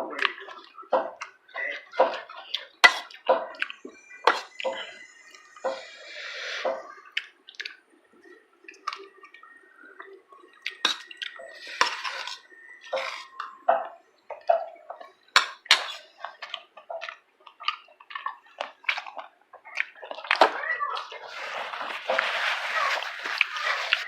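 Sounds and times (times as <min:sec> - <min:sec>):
utensils clinking against dishes: 0:02.8 - 0:03.6, 0:10.9 - 0:13.3, 0:15.4 - 0:16.1.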